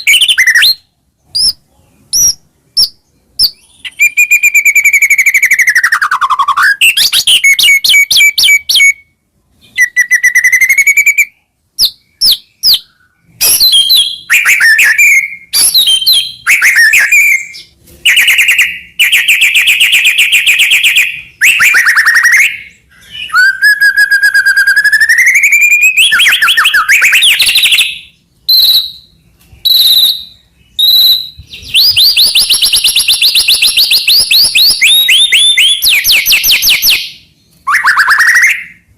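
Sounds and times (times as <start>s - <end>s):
bird singing whistles and trills: 0.0s - 38.9s.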